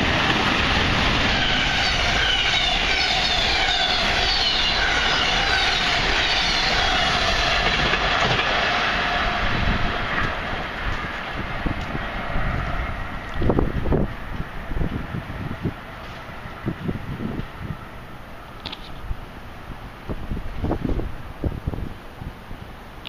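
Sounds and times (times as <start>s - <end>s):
train passing at speed: 0.0s - 23.0s.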